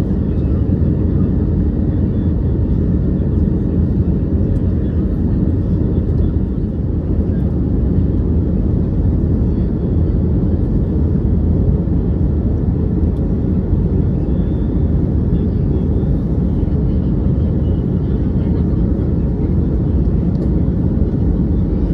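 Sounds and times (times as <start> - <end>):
airliner cabin engine rumble: 0.0 - 21.9.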